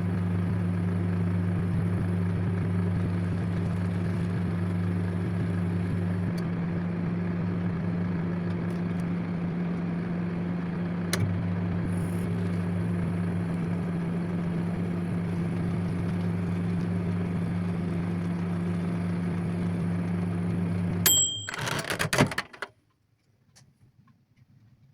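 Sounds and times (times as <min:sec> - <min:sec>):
microwave oven humming: 0:00.0 - 0:22.2
microwave click: 0:11.1 - 0:11.4, 0:20.8 - 0:22.3.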